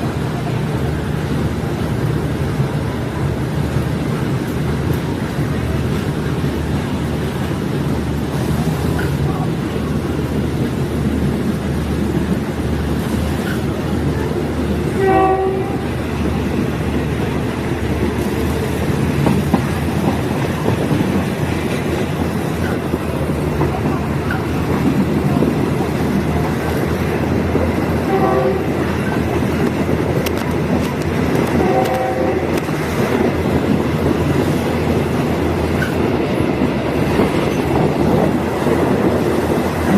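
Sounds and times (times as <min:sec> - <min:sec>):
train rumbling along track: 0:00.0 - 0:39.9
train horn blasts: 0:14.9 - 0:16.0, 0:28.0 - 0:28.9, 0:31.4 - 0:32.7.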